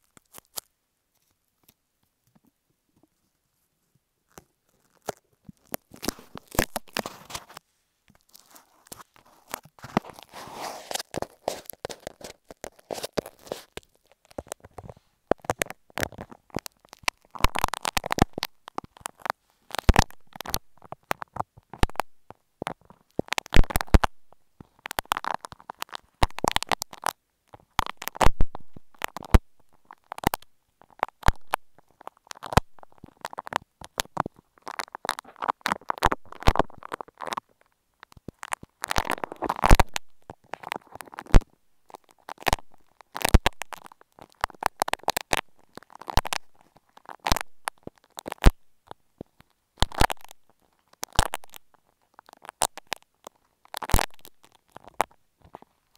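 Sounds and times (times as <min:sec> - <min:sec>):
sticky clay crackles: 0:00.0 - 0:55.9
sharp clicks of clay: 0:08.2 - 0:37.4, 0:38.1 - 0:48.7, 0:53.8 - 0:55.2.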